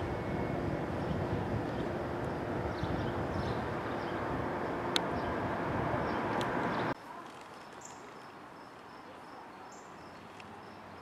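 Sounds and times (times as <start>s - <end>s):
passing train rumble: 0.0s - 7.0s
insects chirping: 7.6s - 11.0s.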